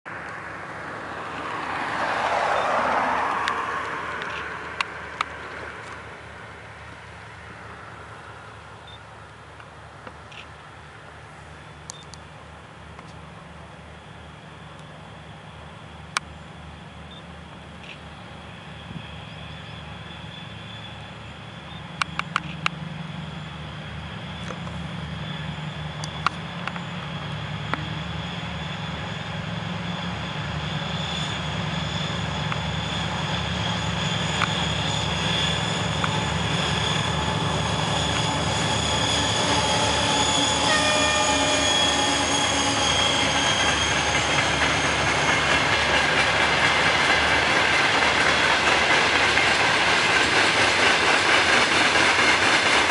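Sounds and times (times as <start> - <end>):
diesel locomotive engines running: 0.1 - 52.9
high whine: 18.8 - 50.0.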